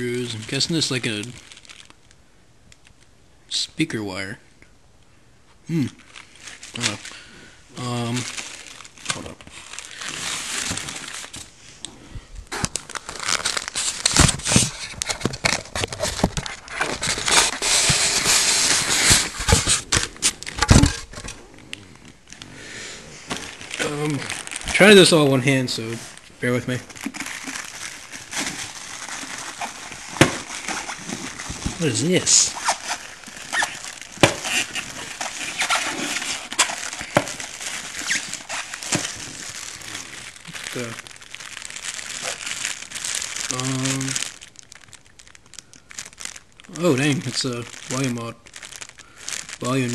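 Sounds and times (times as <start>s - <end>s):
plastic wrap crinkling: 0.0s - 3.0s, 5.8s - 22.5s, 23.1s - 49.9s.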